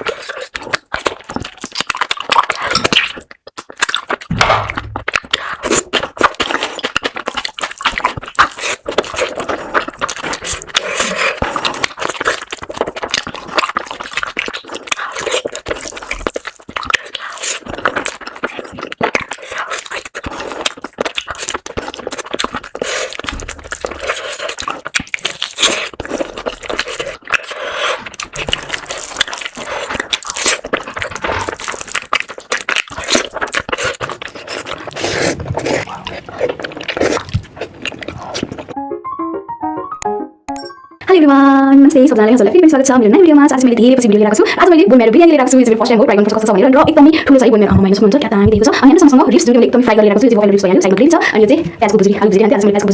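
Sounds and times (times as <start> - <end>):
chewing and crunching food: 0.0 - 38.8, 42.0 - 52.9.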